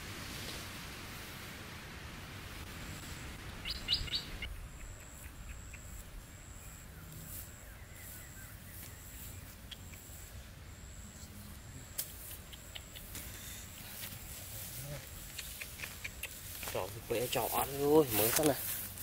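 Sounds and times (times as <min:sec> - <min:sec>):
outdoor hiss: 0:00.0 - 0:19.0
bird chirping: 0:03.4 - 0:10.2.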